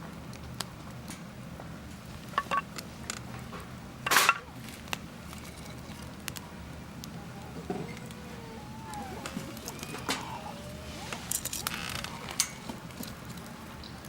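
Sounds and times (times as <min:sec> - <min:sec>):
campfire crackling: 0:04.6 - 0:13.8.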